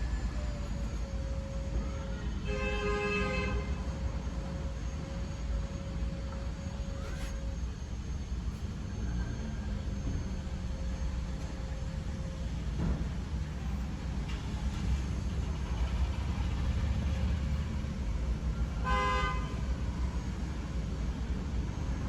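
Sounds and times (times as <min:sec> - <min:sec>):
car horn toot: 0:18.8 - 0:19.6.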